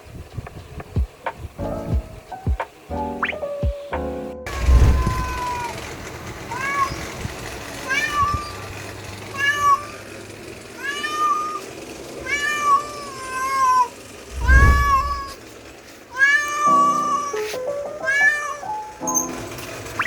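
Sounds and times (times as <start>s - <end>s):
background music: 1.6s - 5.0s
cat meowing: 4.5s - 5.8s, 6.5s - 7.1s, 7.8s - 8.6s, 9.3s - 10.0s, 10.8s - 15.4s, 16.1s - 18.9s.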